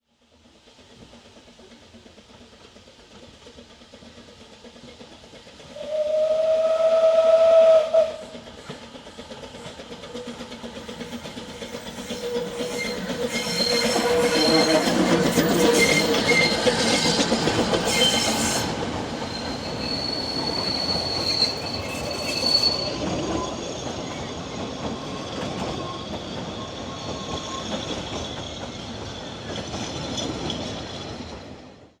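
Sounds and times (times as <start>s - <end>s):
train wheels clattering over rails: 7.8s - 31.9s
high wheel squeal: 10.9s - 31.3s.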